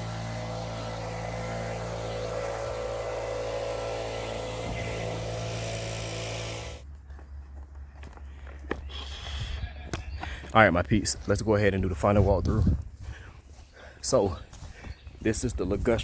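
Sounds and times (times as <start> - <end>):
small petrol engine running: 0.0 - 6.8.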